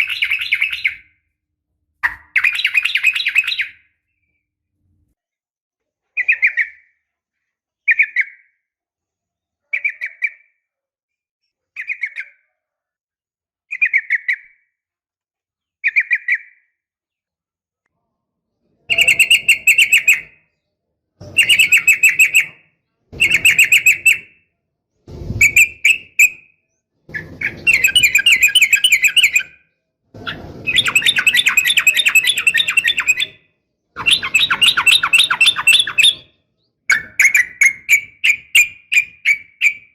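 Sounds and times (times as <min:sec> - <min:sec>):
bird chirping: 0:00.0 - 0:01.2, 0:02.0 - 0:04.4, 0:18.9 - 0:24.4, 0:25.4 - 0:39.9
bird rapid trills: 0:30.3 - 0:33.3.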